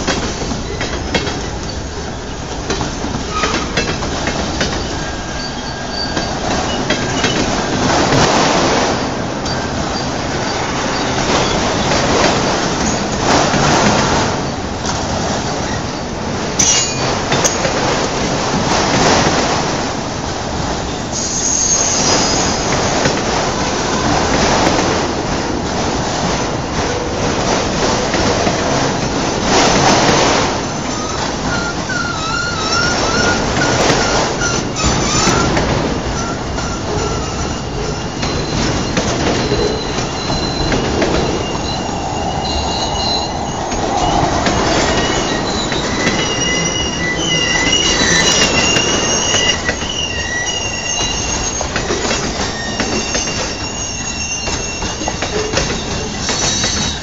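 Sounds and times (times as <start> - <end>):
freight train wheels clattering: 0.0 - 57.0
high-pitched wheel squeal: 30.8 - 57.0.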